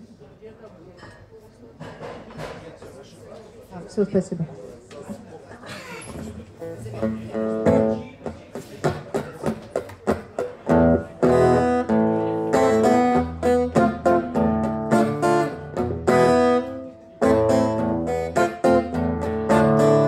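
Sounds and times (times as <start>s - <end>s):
acoustic guitar plucking and strumming: 7.0s - 20.0s.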